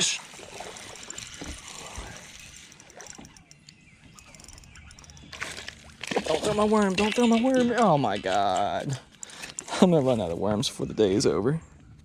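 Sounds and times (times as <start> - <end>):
fishing reel cranking: 0.2 - 7.8
small clicks: 0.8 - 6.2.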